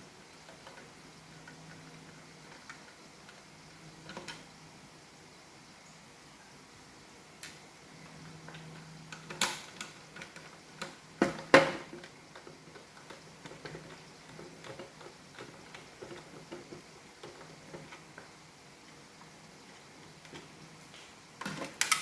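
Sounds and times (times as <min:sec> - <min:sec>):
plastic parts clicking and knocking: 0:04.0 - 0:04.4, 0:08.2 - 0:18.3, 0:20.2 - 0:22.0.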